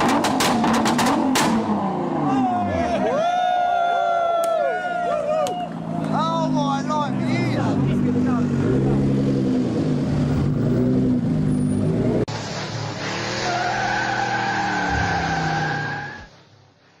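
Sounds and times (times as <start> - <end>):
tyre squeal: 13.4 - 16.3.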